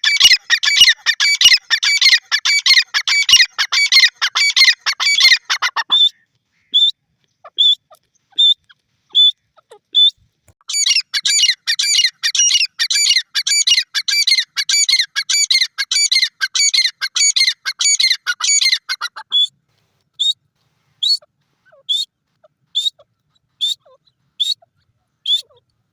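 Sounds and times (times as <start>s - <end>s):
bird shrill repeated calls: 0.0s - 9.4s, 10.7s - 19.5s, 23.6s - 25.6s.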